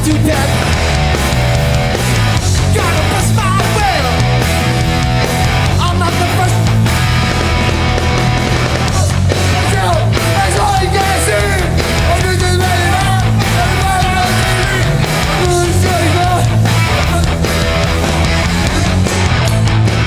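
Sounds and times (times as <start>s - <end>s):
hardcore punk band playing live: 0.0s - 20.0s
person singing: 8.7s - 17.6s.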